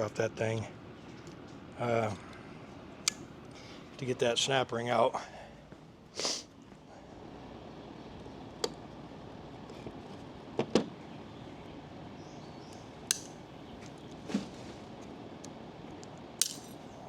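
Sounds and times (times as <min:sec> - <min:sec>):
steady background hum: 0:00.0 - 0:17.0
metallic clicks of hand tools: 0:13.1 - 0:13.4, 0:16.4 - 0:16.8.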